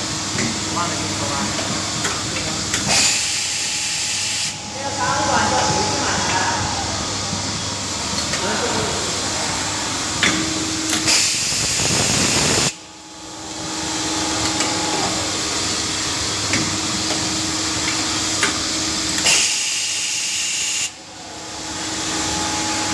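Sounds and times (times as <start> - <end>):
machine hum: 0.0 - 19.3
loud hiss: 11.0 - 12.8.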